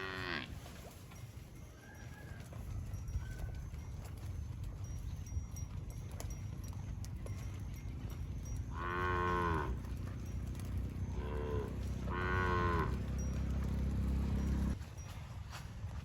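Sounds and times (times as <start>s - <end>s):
cow mooing: 0.0s - 0.6s, 8.6s - 14.8s
low steady rumble: 4.8s - 14.8s.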